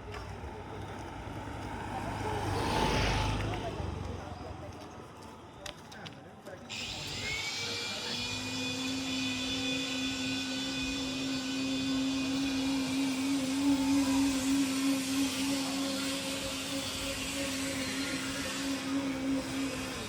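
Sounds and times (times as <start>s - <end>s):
small motor whirring: 6.7s - 20.0s.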